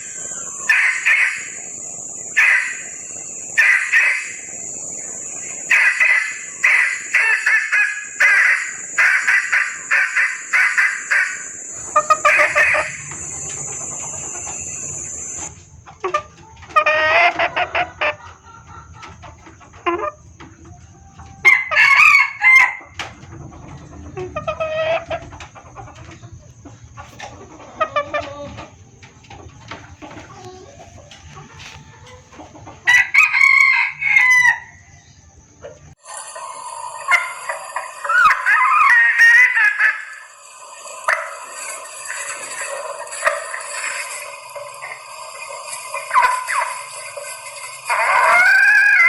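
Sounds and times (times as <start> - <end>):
hen clucking calls: 0.0 - 49.0
high-pitched buzz: 8.0 - 15.6.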